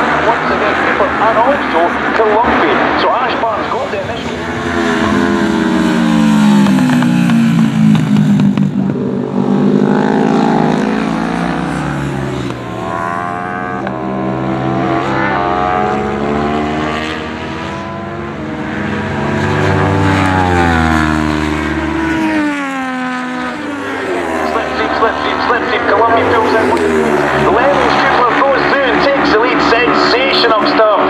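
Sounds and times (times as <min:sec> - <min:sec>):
racing motorcycles at full throttle: 0:00.0 - 0:31.0.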